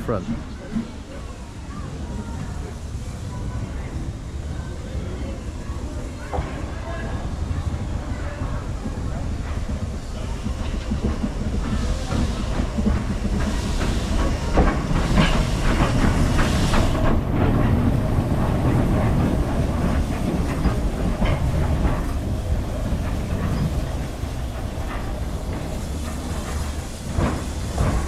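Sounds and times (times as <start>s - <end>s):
steam hissing: 0.0s - 28.0s
steam train rumble: 0.0s - 28.0s
wheels clicking over rail joints: 9.4s - 28.0s.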